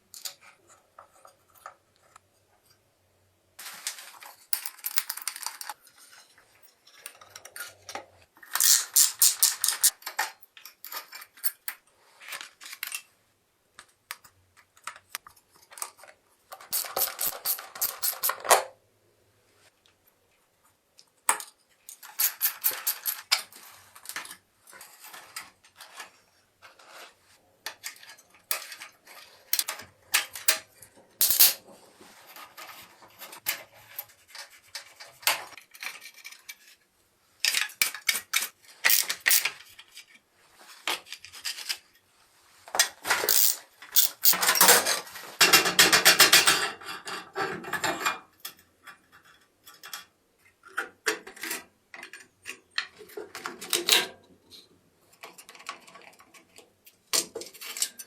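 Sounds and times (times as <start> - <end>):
metal pieces clinking: 4.6 - 5.5, 8.6 - 9.9, 31.2 - 31.6, 38.9 - 39.5, 43.3 - 44.4
scraping and rubbing metal: 8.6 - 9.9, 38.9 - 39.5, 43.3 - 44.4.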